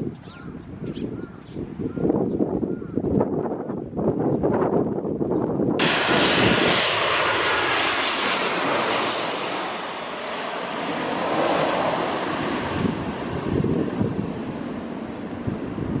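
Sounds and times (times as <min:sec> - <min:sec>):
jet airliner passing overhead: 0:05.8 - 0:16.0.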